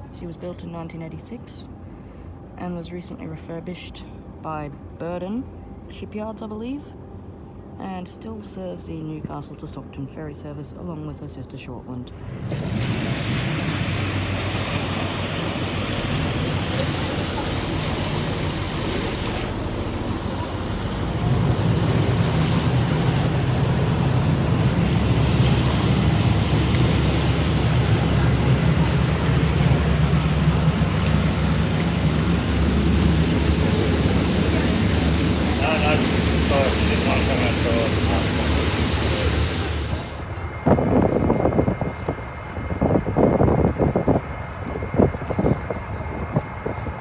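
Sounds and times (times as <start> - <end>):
ferry engine humming: 11.8 - 47.0
water rushing: 12.2 - 41.3
wind on microphone: 12.5 - 47.0.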